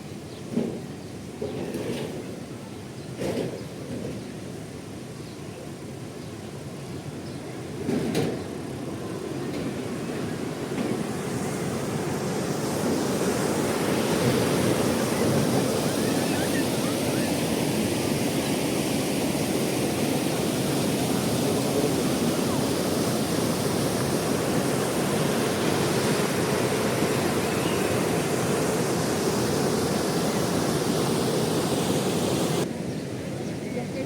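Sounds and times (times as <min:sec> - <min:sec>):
fast-flowing river water: 0:08.7 - 0:34.0.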